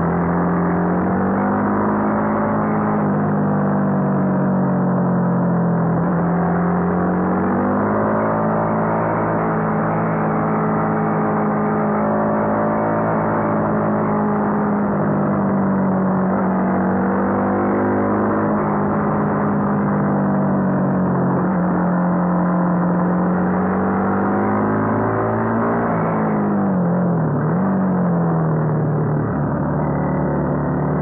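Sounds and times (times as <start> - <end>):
motorcycle engine at high revs: 0.0 - 31.0.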